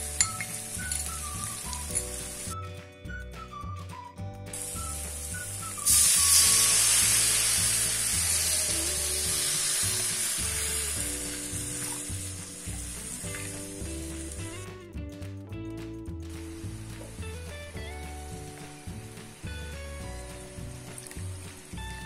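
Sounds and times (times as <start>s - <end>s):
loud sizzle in a hot pan: 0.0s - 2.6s, 4.5s - 14.7s, 16.5s - 22.0s
background music with a beat: 0.0s - 22.0s.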